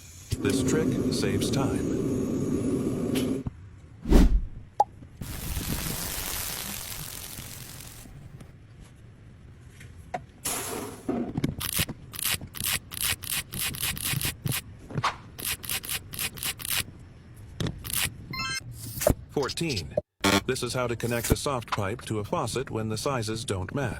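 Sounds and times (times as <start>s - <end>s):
hiss: 5.2s - 8.2s.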